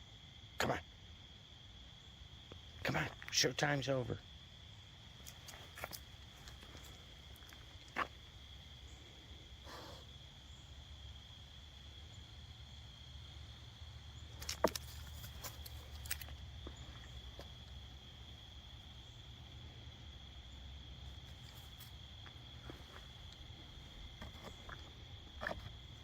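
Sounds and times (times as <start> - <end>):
crickets trilling: 0.0 - 26.0
sharp clicks and rustles: 14.3 - 16.4.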